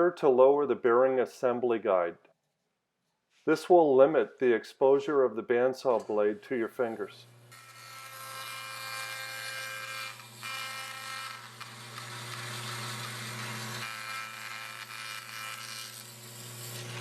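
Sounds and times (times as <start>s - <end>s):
bandsaw motor hum: 6.8s - 17.0s.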